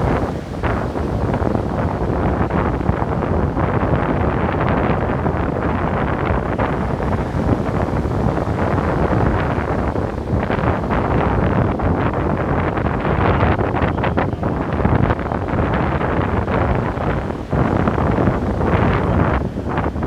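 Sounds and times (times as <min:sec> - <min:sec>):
ocean surf breaking on beach: 0:00.0 - 0:20.0.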